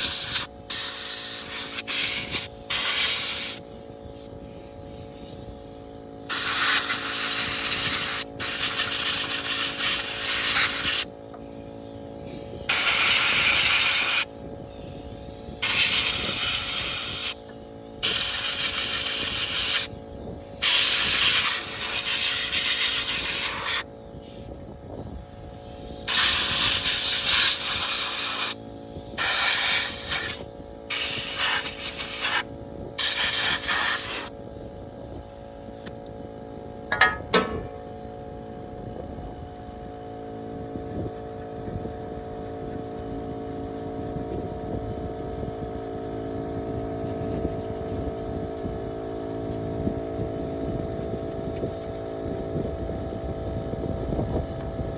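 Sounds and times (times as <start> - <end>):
hissing spray blasts: 0.0 - 24.6, 25.4 - 36.0
steady machine hum: 0.0 - 54.9.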